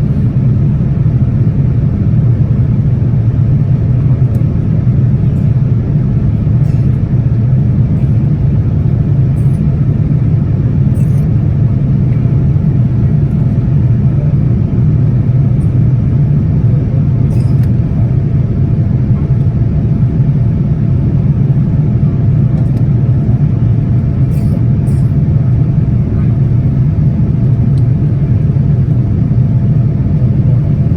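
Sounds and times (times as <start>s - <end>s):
aircraft cabin engine roar: 0.0s - 30.9s.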